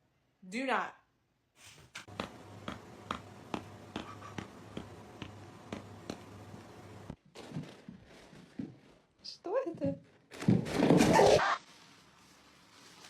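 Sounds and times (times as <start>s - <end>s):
steady low hum: 2.1s - 7.2s.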